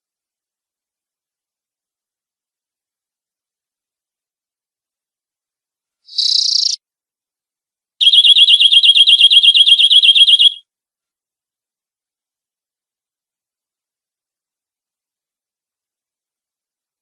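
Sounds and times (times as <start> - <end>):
canary singing: 6.1 - 6.8, 8.0 - 10.6.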